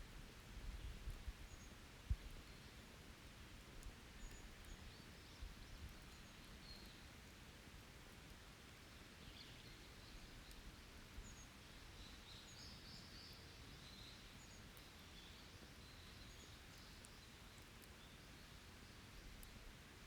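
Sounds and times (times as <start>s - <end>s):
low steady background noise: 0.0s - 20.0s
faint ticks: 19.3s - 19.6s.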